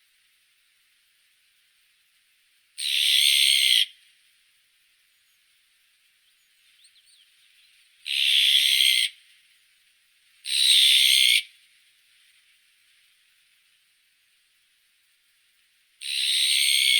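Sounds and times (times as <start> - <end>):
bird harsh raspy calls: 8.0 - 9.1.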